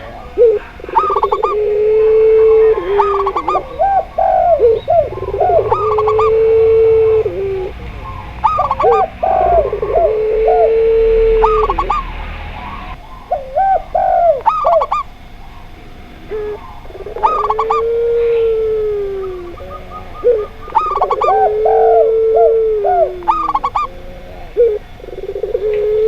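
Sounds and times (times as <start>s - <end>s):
quick higher coo notes: 0.0s - 15.1s
long low dove coos: 0.0s - 26.0s.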